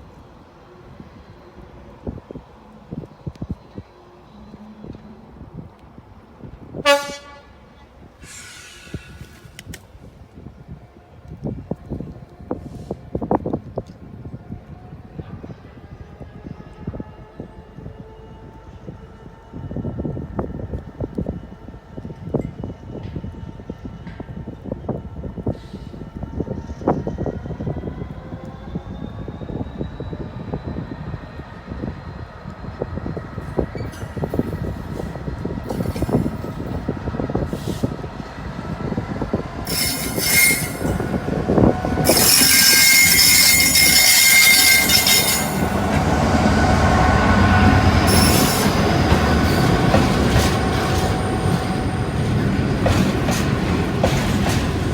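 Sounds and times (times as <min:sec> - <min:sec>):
wind buffeting microphone: 0:00.1 - 0:54.9
diesel train rumble: 0:04.4 - 0:14.6, 0:18.5 - 0:54.9
train horn toot: 0:06.7 - 0:08.8, 0:39.6 - 0:48.9.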